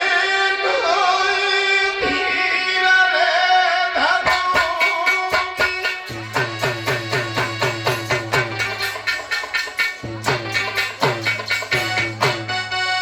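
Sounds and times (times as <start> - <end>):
drum strokes: 4.1 - 12.6
bass beat: 5.3 - 12.6.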